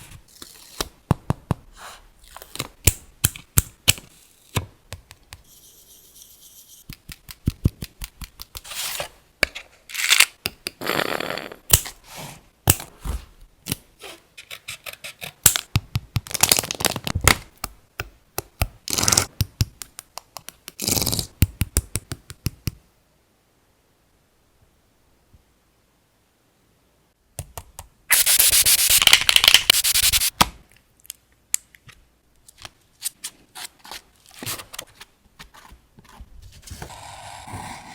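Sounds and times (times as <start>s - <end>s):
sharp clicks and taps: 17.5s - 20.8s.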